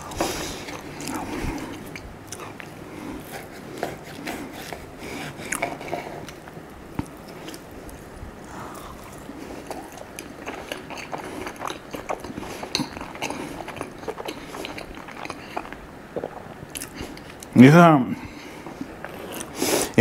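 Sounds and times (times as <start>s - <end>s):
person chewing food: 0.0s - 17.6s, 18.3s - 20.0s
mouth smacks and clicks: 8.8s - 17.6s.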